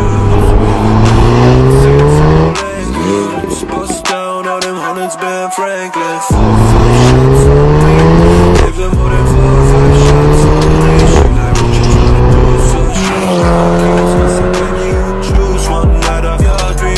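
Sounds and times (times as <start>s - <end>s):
car exhaust accelerating hard: 0.0s - 3.8s, 6.4s - 15.9s
background music with a beat: 0.0s - 16.9s.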